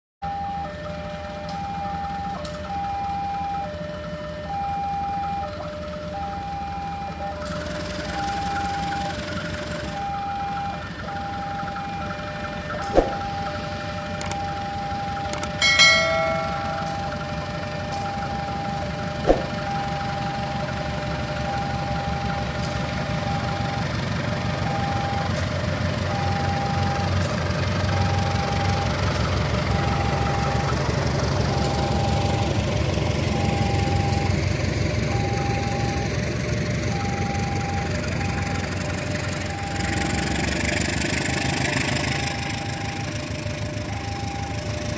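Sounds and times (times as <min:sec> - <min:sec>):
level crossing warning tone: 0:00.2 - 0:44.9
approaching train rumble: 0:10.8 - 0:44.9
sharp clicks: 0:14.2 - 0:14.5, 0:15.3 - 0:15.6.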